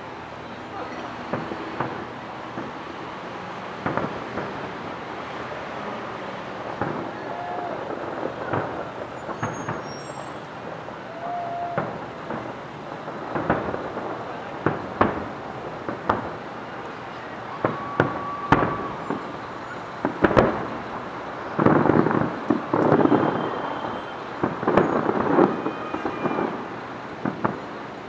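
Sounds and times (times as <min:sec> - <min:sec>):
firework shells bursting: 0:06.1 - 0:17.0, 0:17.6 - 0:27.7.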